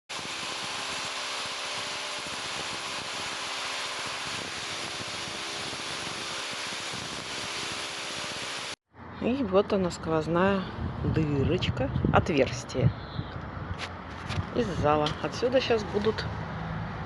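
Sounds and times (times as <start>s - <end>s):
machine hissing: 0.1s - 8.8s.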